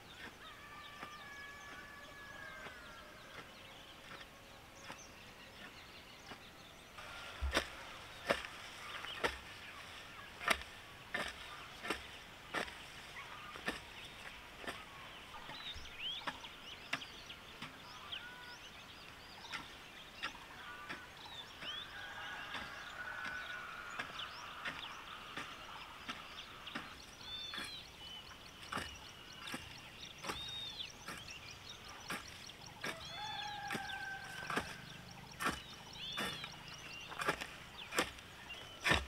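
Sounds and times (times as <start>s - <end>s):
birds chirping and calling: 0.0s - 39.0s.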